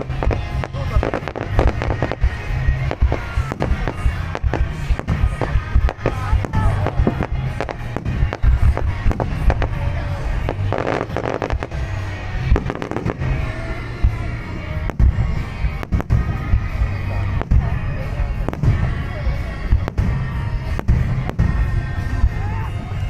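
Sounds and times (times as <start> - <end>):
deep rumble: 0.0 - 23.0
fireworks bangs and crackle: 0.0 - 23.0
music playing: 0.0 - 23.0.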